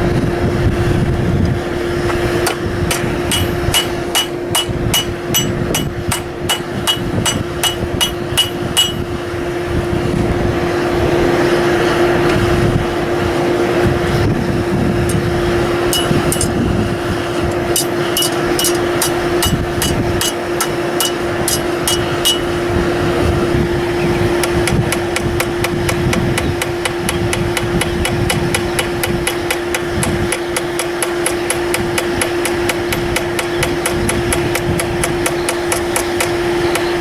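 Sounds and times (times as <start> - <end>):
steady hum: 0.0 - 37.0
hammer striking steel on anvil: 2.4 - 9.1, 15.9 - 16.6, 17.5 - 22.6, 24.4 - 37.0.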